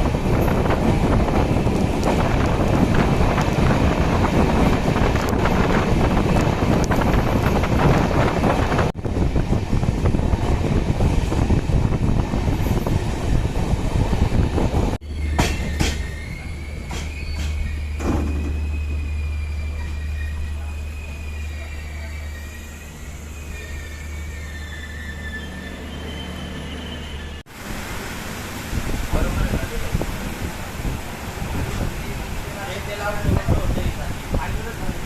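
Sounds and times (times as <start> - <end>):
train rumbling and rushing: 0.0 - 35.0
high wheel squeal: 15.0 - 27.5.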